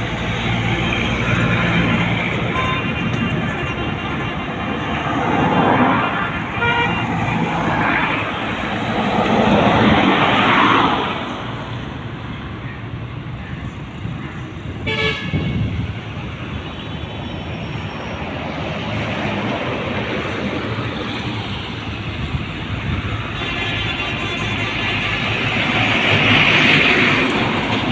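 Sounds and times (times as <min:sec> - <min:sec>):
road and tyre noise: 0:00.0 - 0:27.9.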